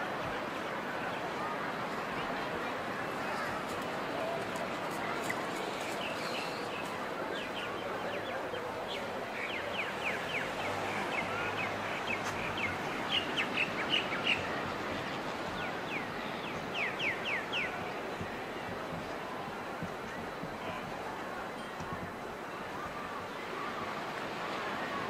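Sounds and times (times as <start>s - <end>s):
steady background hiss: 0.0s - 25.0s
birds chirping: 5.1s - 18.4s.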